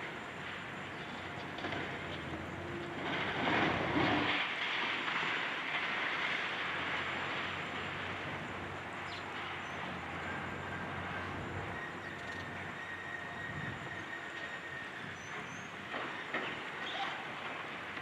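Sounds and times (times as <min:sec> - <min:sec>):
excavator rumbling: 0:00.0 - 0:18.0.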